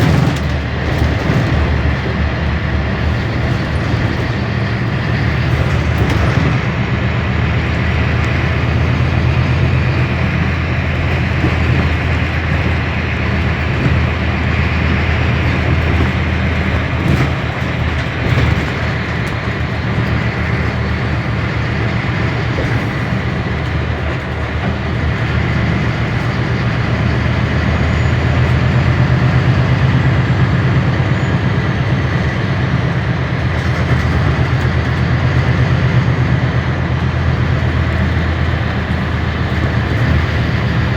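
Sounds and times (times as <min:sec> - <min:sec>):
bus drivetrain drone: 0:00.0 - 0:40.9
road noise: 0:00.0 - 0:40.9.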